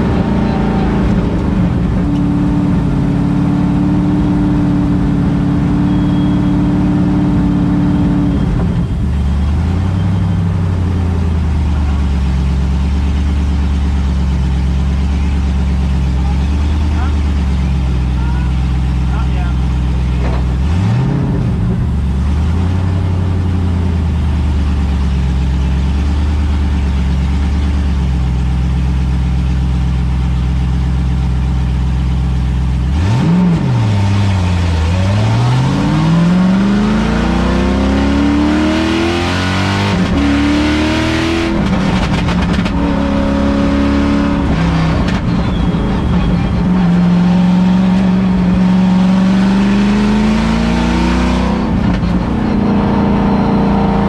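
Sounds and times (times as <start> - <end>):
car engine revving and accelerating: 0.0 - 27.8, 28.4 - 54.0.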